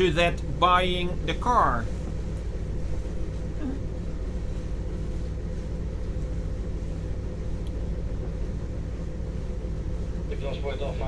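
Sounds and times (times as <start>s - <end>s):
boat engines droning: 0.0s - 5.2s, 8.3s - 11.0s.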